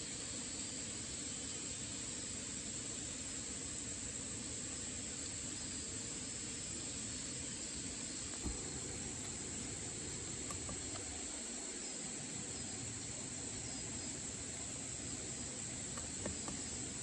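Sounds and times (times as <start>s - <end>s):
high insect drone: 0.0s - 17.0s
stream water rushing: 8.2s - 17.0s.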